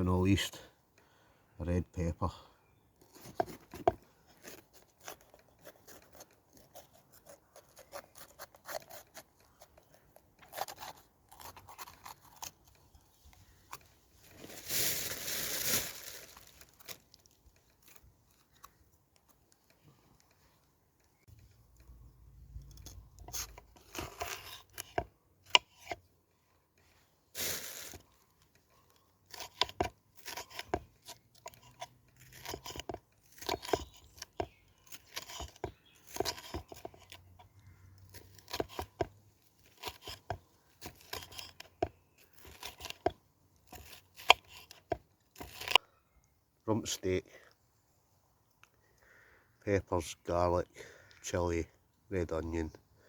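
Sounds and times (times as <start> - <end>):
knife cutting pepper: 3.1 - 12.8, 29.3 - 45.8
tearing or rustling rush: 13.7 - 18.7.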